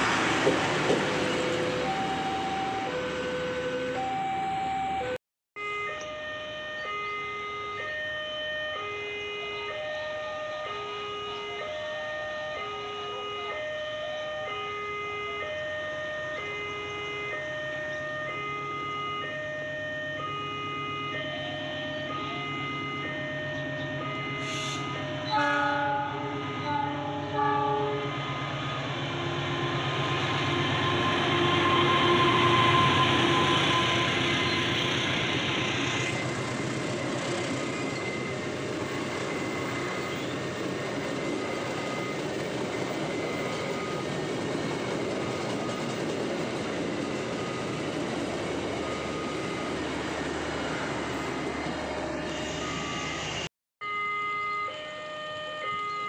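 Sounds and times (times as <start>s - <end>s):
train wheels rumbling on rails: 0.0s - 3.1s, 27.3s - 53.4s
train horn blasts: 24.0s - 35.7s.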